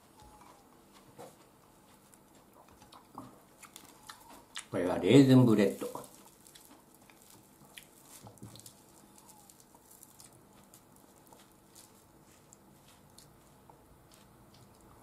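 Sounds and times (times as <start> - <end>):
faint chewing: 0.0 - 15.0.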